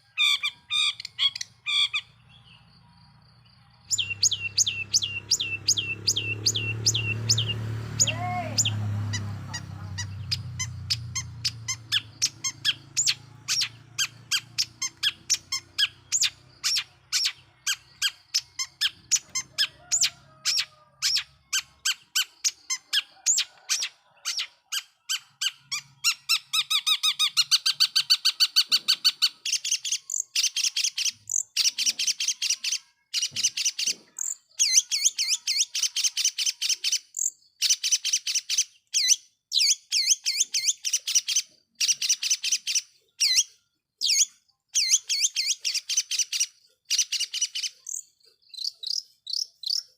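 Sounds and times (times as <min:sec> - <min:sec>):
shrike chirping: 0:03.8 - 0:22.6.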